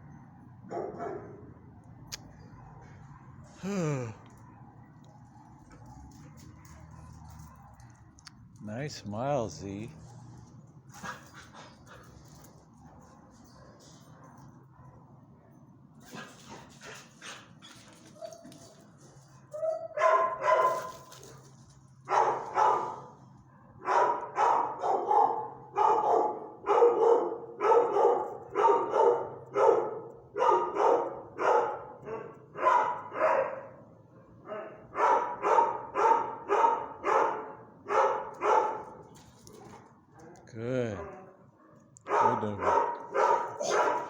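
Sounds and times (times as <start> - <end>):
dog barking: 0.7 - 1.5, 19.6 - 21.0, 22.1 - 39.0, 41.0 - 44.0.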